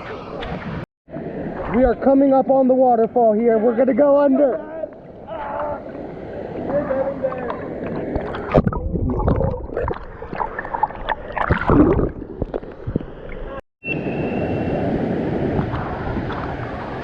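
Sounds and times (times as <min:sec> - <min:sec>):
water splashing and gurgling: 0:05.0 - 0:13.6.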